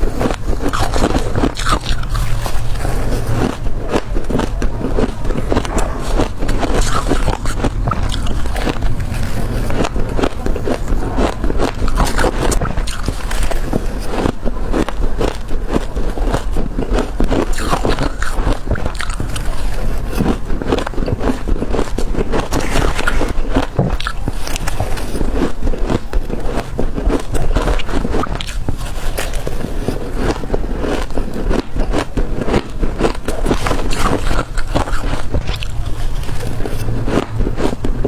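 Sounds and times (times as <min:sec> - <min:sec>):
crushed ice crunching: 0:00.0 - 0:38.0.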